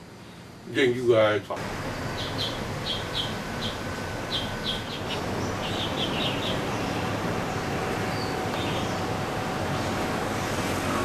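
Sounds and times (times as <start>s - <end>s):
steady background hum: 0.0s - 11.0s
small bird chirping: 2.0s - 9.3s.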